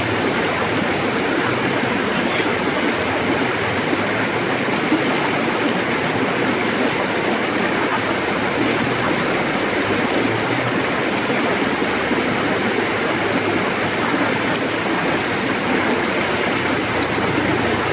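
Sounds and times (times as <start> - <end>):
river water rushing over rocks: 0.0 - 17.9.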